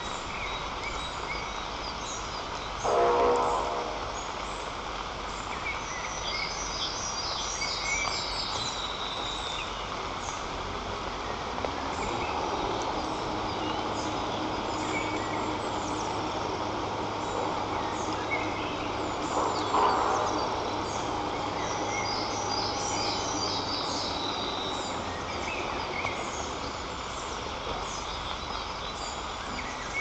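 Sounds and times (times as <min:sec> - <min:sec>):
songbirds chirping and singing: 0:05.4 - 0:30.0
steady rushing background: 0:10.0 - 0:28.5.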